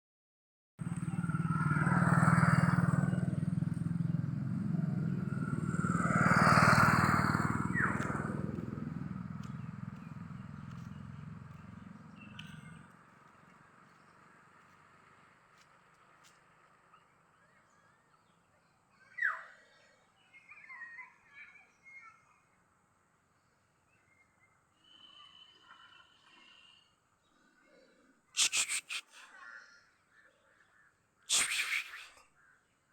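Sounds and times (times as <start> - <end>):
vehicle engine running: 0.8 - 16.8.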